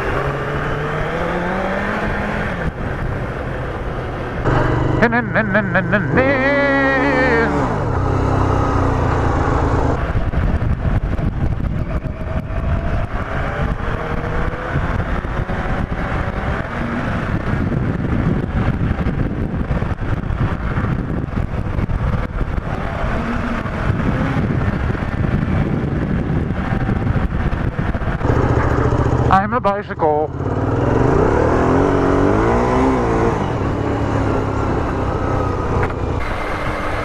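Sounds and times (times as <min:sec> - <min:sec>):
motorcycle engine running: 0:02.8 - 0:37.0
wind buffeting microphone: 0:07.6 - 0:29.3.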